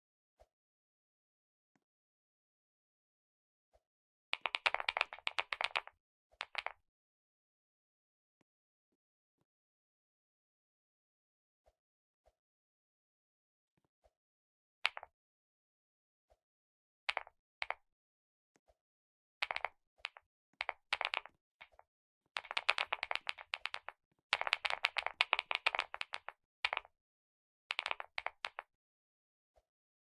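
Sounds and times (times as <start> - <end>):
computer keyboard typing: 4.4 - 6.7, 19.4 - 21.8, 22.4 - 26.9, 27.7 - 28.6.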